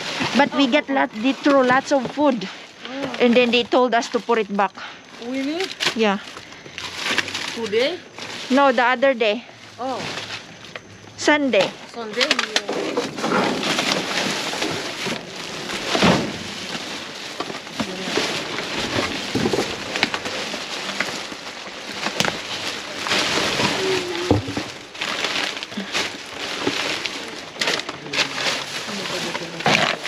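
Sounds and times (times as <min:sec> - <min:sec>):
rustling of produce: 0:00.0 - 0:30.0
knocks and clicks of items moved: 0:10.0 - 0:30.0.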